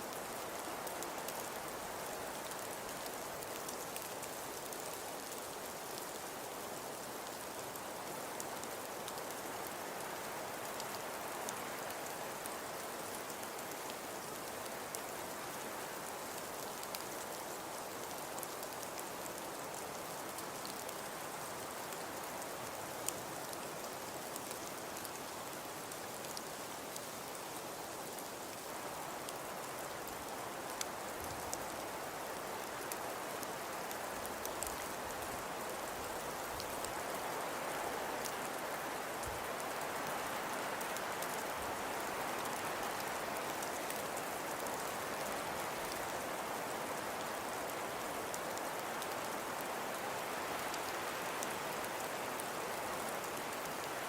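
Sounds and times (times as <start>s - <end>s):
small ticks: 32.6s - 46.2s.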